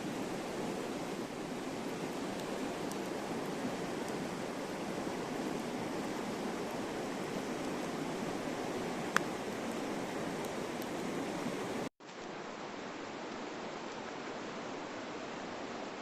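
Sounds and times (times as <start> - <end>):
campfire crackles: 0.0 - 12.5
river rushing: 0.0 - 16.0.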